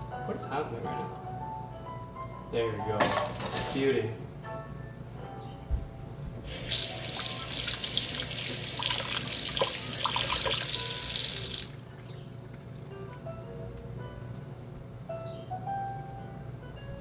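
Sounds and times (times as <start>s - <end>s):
tap running into a sink: 6.5s - 12.6s.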